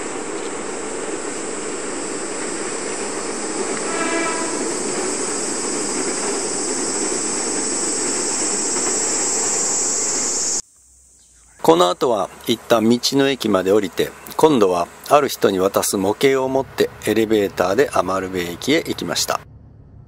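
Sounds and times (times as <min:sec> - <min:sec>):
train rumbling over bridge: 0:00.0 - 0:10.6, 0:11.6 - 0:20.0
tape hiss: 0:00.0 - 0:19.5
train horn blast: 0:03.6 - 0:06.1.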